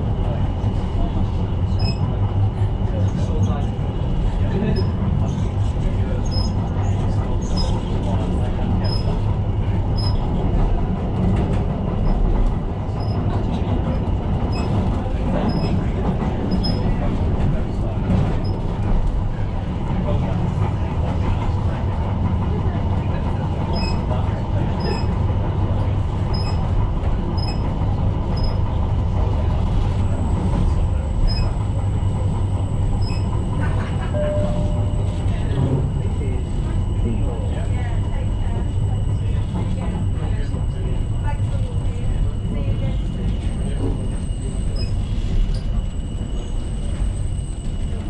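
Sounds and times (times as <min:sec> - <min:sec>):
train wheels and motors rumbling: 0:00.0 - 0:48.0
short high-pitched beeps: 0:34.1 - 0:35.3.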